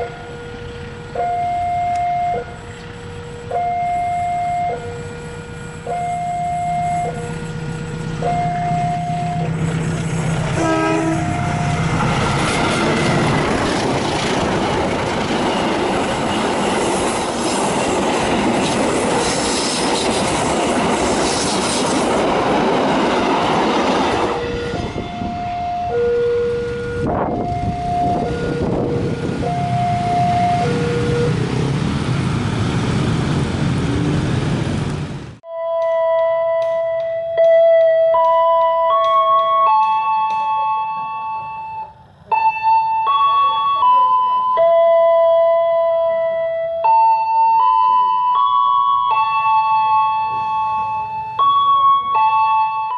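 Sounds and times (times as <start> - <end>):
train horn: 0.0 - 9.6, 10.5 - 12.4, 24.3 - 31.4
level crossing alarm: 0.0 - 9.7, 10.6 - 13.2, 23.0 - 31.6, 35.4 - 52.9
train passing: 0.0 - 52.9.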